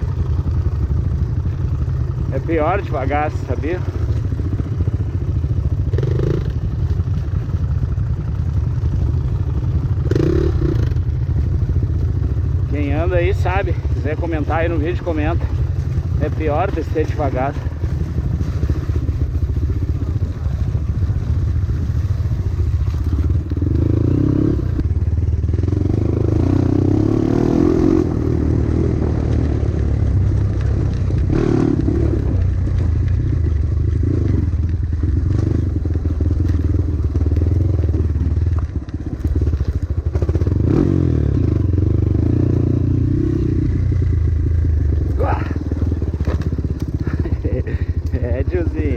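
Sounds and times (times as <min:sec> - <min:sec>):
dirt bike engine running: 0:00.0 - 0:48.9
bike clattering over rough ground: 0:30.3 - 0:40.6, 0:44.9 - 0:48.9.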